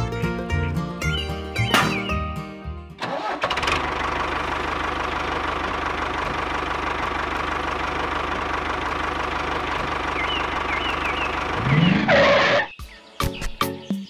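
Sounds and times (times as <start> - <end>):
music: 0.0 - 3.0, 12.7 - 14.0
tractor engine chugging: 3.0 - 12.4.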